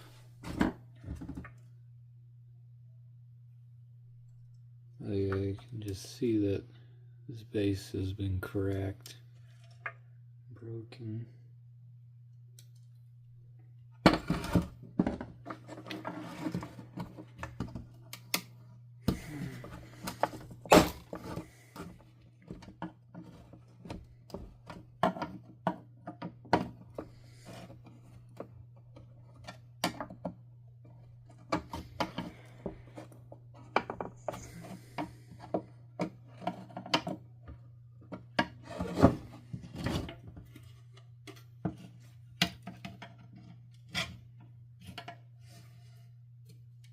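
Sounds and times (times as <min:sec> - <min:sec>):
plastic parts clicking and scraping: 0:14.2 - 0:45.8.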